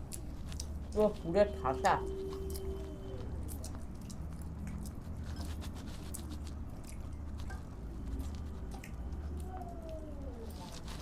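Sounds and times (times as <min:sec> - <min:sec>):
person chewing food: 0:00.0 - 0:01.0, 0:02.2 - 0:11.0
low steady hum: 0:00.0 - 0:11.0.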